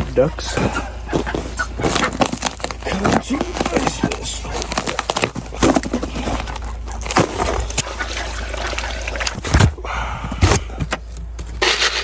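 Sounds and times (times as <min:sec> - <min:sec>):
water sloshing and pouring: 0:07.0 - 0:09.4.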